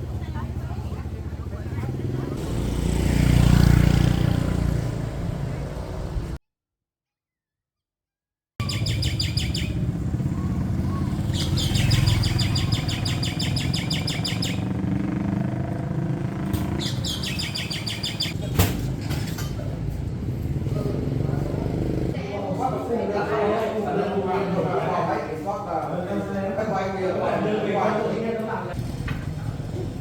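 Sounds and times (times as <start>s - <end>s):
rapid chirping trills: 8.6s - 14.8s, 16.7s - 18.4s.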